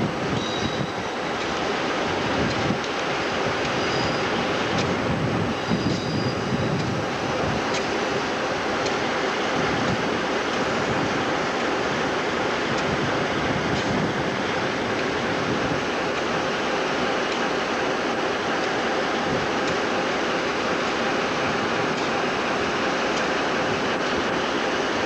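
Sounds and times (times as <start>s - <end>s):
train rumbling: 0.0s - 25.0s
wheels clicking over rail joints: 0.0s - 25.0s.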